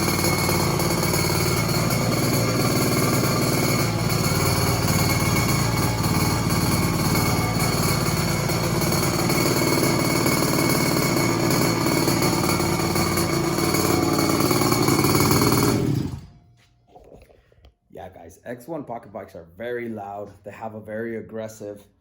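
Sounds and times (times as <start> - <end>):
small two-stroke engine running: 0.0 - 16.4.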